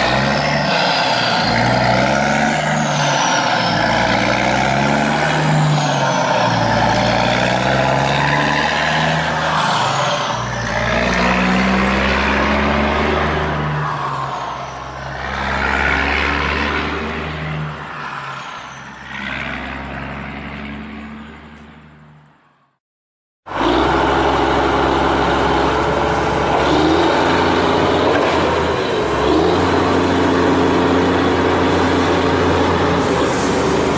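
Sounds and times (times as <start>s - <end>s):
truck engine running: 23.5s - 33.9s.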